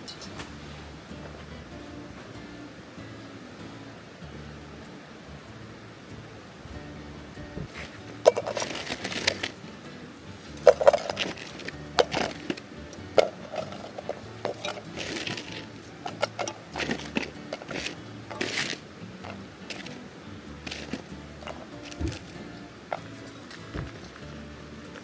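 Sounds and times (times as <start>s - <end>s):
quiet background music: 0.0s - 25.0s
objects being handled clattering: 7.6s - 9.6s, 10.5s - 20.0s, 20.6s - 25.0s.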